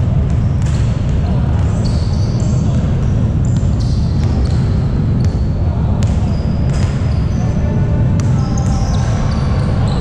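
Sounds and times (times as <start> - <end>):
sneaker squeaks on court: 1.6 - 5.4, 6.0 - 7.6, 8.2 - 10.0
basketball bouncing: 2.7 - 5.4.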